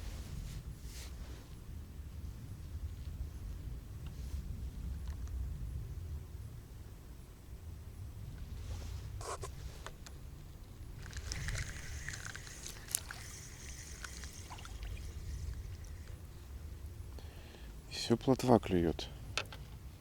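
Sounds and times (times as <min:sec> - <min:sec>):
light splashing and scraping: 0:10.9 - 0:17.2.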